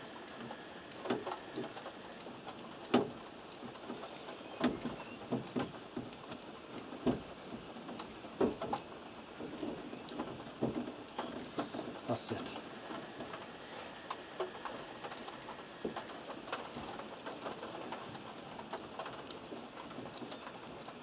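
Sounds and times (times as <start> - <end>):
steady rain falling: 0.0 - 21.0
sharp clicks and knocks: 0.4 - 13.5.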